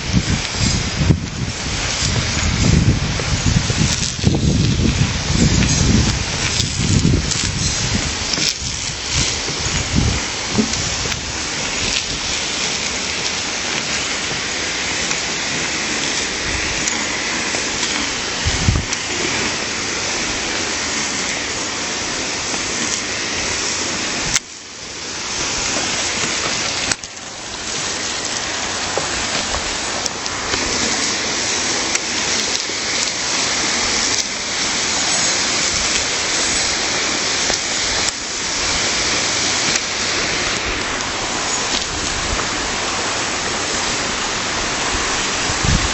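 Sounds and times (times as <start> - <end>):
stream water flowing: 0.0 - 45.9.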